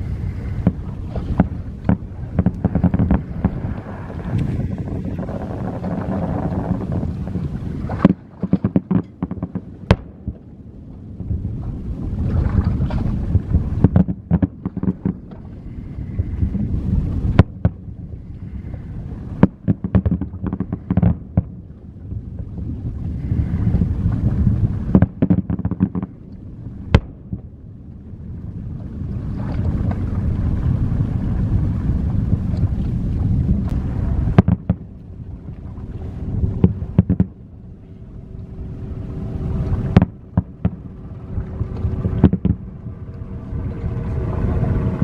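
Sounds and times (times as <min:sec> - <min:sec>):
low rumble: 0:00.0 - 0:45.0
fireworks bangs and crackles: 0:00.6 - 0:10.2, 0:24.9 - 0:26.1, 0:36.6 - 0:37.4.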